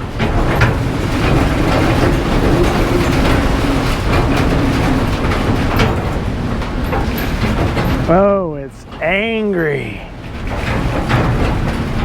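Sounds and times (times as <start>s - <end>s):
storm wind gusting: 0.0s - 8.1s.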